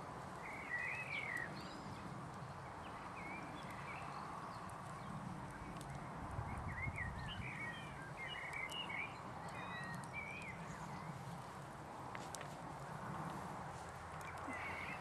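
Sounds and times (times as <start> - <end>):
small birds twittering: 0.4 - 11.4, 14.2 - 15.0
faint clicks: 5.4 - 6.1, 12.1 - 15.0.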